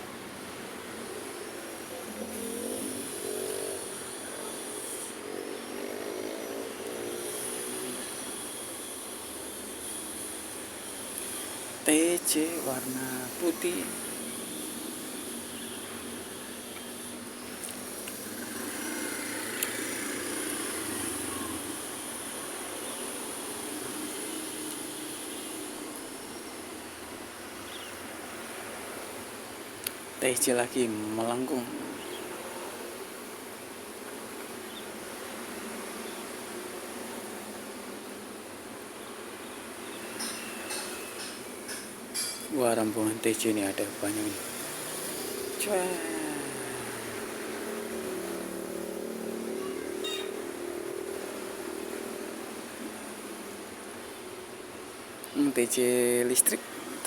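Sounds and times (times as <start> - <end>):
street traffic: 0.0 - 57.0
passing vehicles rushing: 0.6 - 33.6, 43.1 - 54.6
engines accelerating: 2.1 - 8.4, 44.4 - 52.9.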